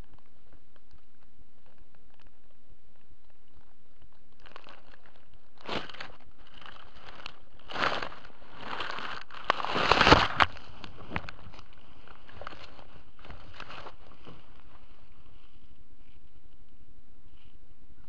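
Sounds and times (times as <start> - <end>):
twigs snapping: 3.3 - 14.8
footsteps on dry leaves: 4.4 - 15.6.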